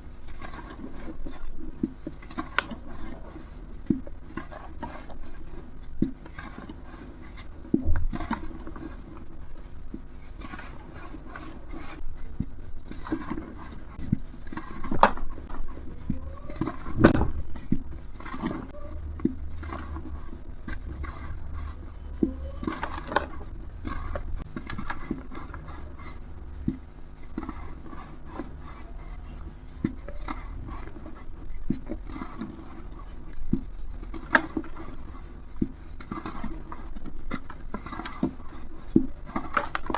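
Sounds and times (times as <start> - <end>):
brittle material crumbling: 35.6 - 39.9.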